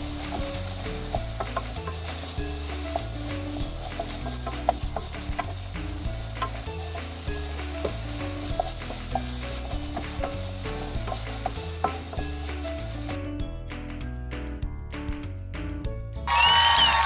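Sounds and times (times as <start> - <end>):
food sizzling in a pan: 0.0 - 13.2
background music: 0.0 - 17.0.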